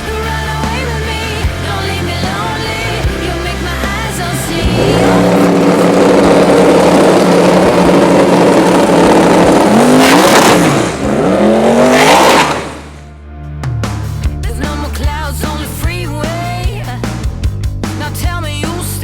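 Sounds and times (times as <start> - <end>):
car engine at full throttle: 0.8 - 13.1.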